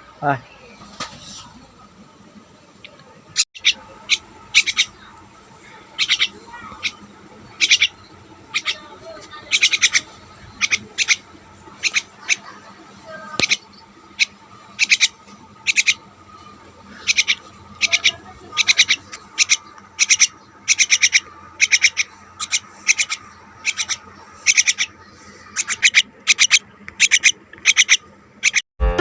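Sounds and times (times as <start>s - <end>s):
pet birds chirping: 2.8s - 28.6s
music: 28.8s - 29.0s.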